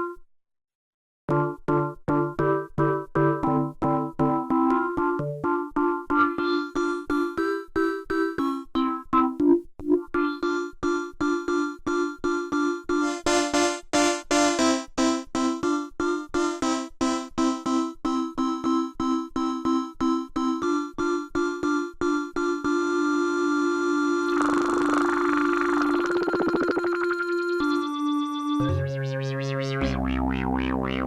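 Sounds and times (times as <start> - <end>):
synthesizer repeating short notes: 24.3 - 28.0, 28.6 - 31.0.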